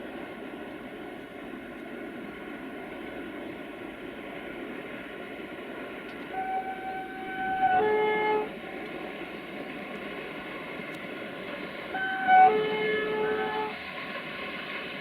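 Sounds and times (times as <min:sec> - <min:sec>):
train running noise: 0:00.0 - 0:15.0
locomotive horn blasts: 0:06.3 - 0:08.6, 0:11.9 - 0:13.8.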